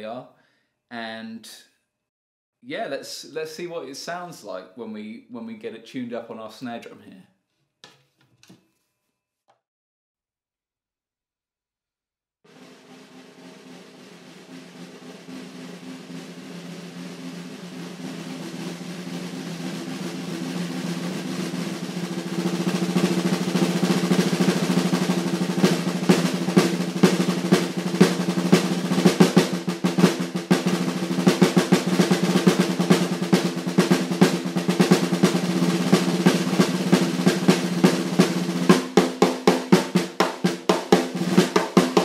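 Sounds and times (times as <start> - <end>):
snare drum roll: 12.5 - 42.0.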